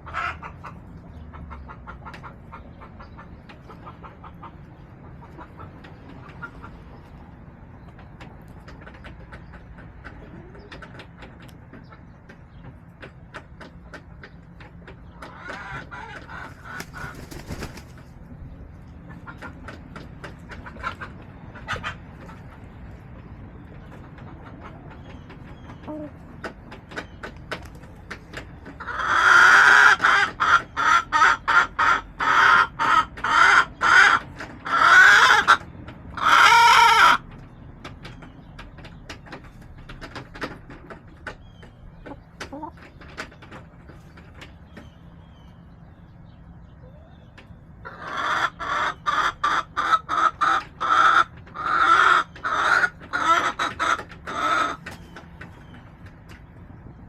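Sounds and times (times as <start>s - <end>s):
hen cackling: 0.0s - 6.8s, 15.1s - 17.9s, 28.7s - 37.3s, 47.8s - 54.9s.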